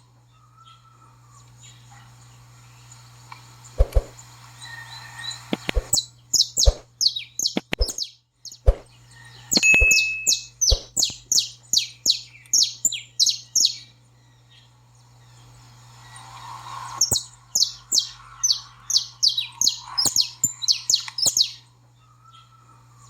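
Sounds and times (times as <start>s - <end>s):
low hum: 3.7s - 4.2s, 9.6s - 11.3s
scattered thumps: 3.8s - 4.2s, 5.6s - 6.0s, 6.6s - 6.9s, 7.6s - 8.0s, 8.7s - 8.9s, 9.6s - 11.1s
finch singing high notes: 9.6s - 13.8s.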